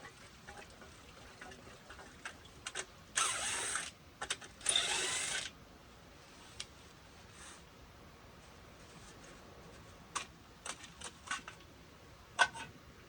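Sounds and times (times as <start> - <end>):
short mechanical tool bursts: 3.2 - 3.9, 4.6 - 5.5
small clicks and knocks: 10.1 - 11.7.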